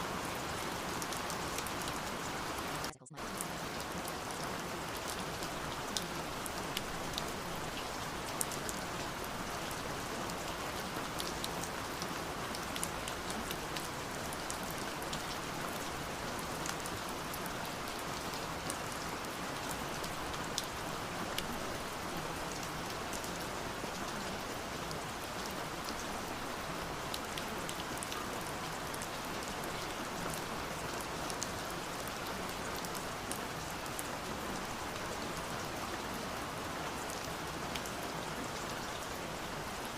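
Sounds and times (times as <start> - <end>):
steady rain falling: 0.0 - 39.9
raindrops ticking on a surface: 0.1 - 39.9.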